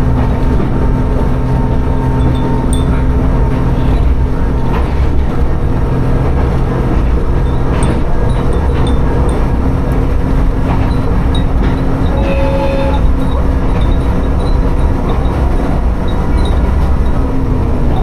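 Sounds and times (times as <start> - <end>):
railcar rumbling on rails: 0.0 - 18.0
wind chimes tinkling: 2.2 - 3.3, 10.9 - 12.6, 13.2 - 17.3
brief tone: 11.7 - 15.4.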